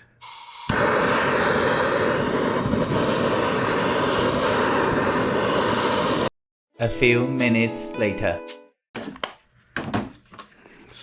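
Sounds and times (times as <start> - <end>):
heat gun blowing roar: 0.2 - 6.3.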